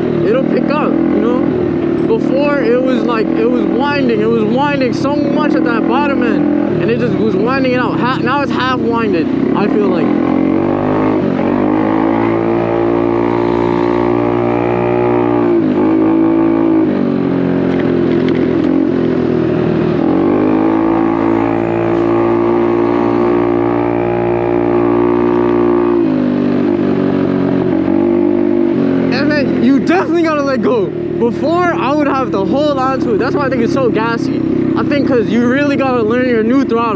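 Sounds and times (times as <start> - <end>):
small motorcycle engine revving: 0.0 - 36.9.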